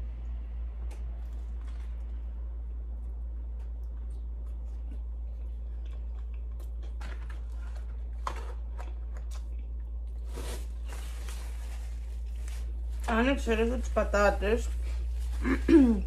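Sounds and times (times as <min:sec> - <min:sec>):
steady low hum: 0:00.0 - 0:16.0
person chewing: 0:00.8 - 0:10.6.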